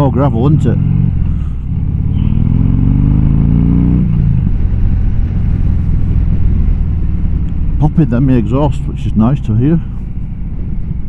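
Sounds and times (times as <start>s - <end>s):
motorcycle engine accelerating: 0.0s - 11.0s
exhaust popping and crackling: 4.1s - 11.0s.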